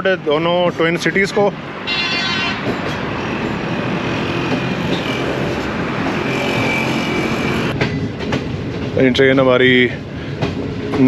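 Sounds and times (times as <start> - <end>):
moving train running noise: 0.0 - 11.0
road traffic: 0.0 - 11.0.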